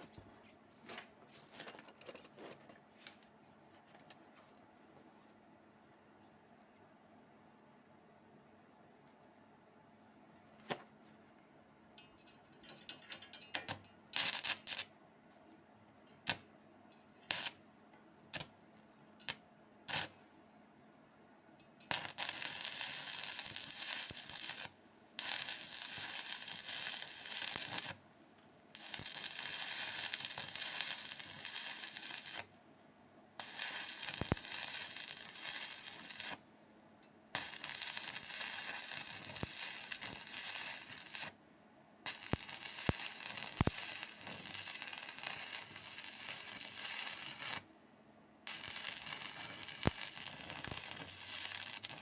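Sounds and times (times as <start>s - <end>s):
welding arc pops and crackles: 13.4s - 14.9s, 16.2s - 16.5s, 17.3s - 17.6s, 18.3s - 18.6s, 19.2s - 20.2s, 21.9s - 28.0s, 28.7s - 32.6s, 33.4s - 36.4s, 37.3s - 41.4s, 42.0s - 47.7s, 48.5s - 52.0s
welding arc hissing crackle: 14.2s - 14.9s, 17.3s - 17.6s, 19.3s - 20.2s, 21.9s - 28.0s, 28.7s - 32.6s, 33.4s - 36.4s, 37.3s - 41.4s, 42.0s - 47.7s, 48.4s - 52.0s.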